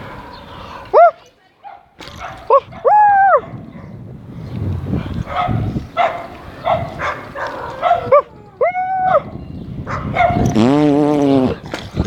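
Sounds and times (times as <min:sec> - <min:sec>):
dogs barking: 0:00.0 - 0:04.0, 0:05.0 - 0:10.6.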